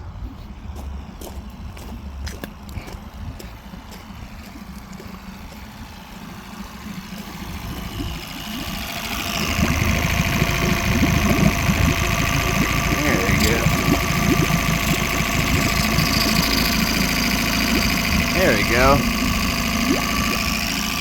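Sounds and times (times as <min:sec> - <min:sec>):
irregular low rumble: 0:00.0 - 0:21.0
outboard motor idling: 0:00.0 - 0:21.0.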